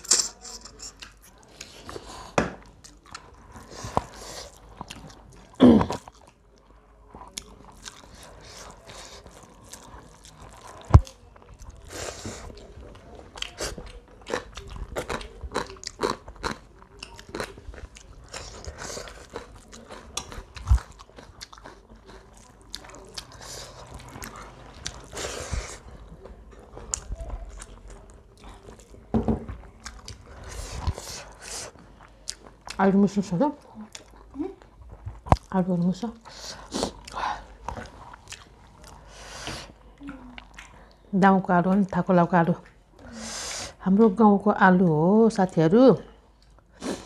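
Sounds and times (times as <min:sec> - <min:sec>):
chewing and crunching: 0:00.0 - 0:41.1.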